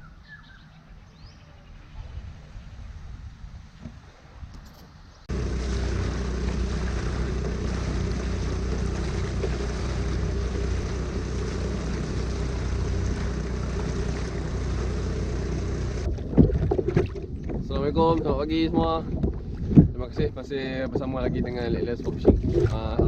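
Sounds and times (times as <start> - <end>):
small engine humming: 5.3 - 16.1.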